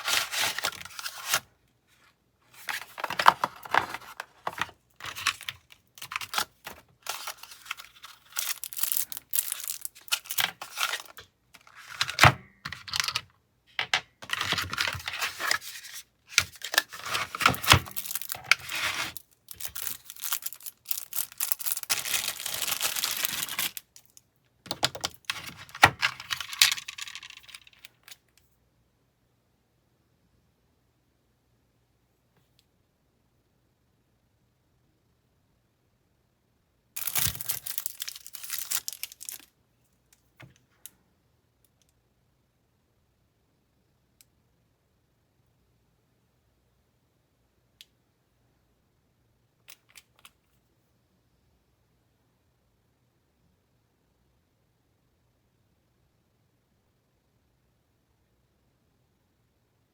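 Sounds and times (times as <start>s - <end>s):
packages rustling and tearing: 0.0s - 1.5s, 2.5s - 12.2s, 14.2s - 24.1s, 37.0s - 39.5s.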